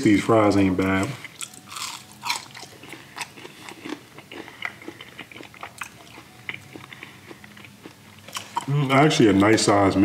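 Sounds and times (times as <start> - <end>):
person chewing crunchy fries: 0.1 - 9.5.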